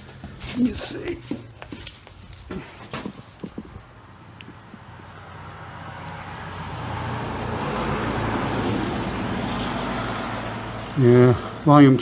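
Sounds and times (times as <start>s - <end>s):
vehicle driving past: 3.9s - 12.0s.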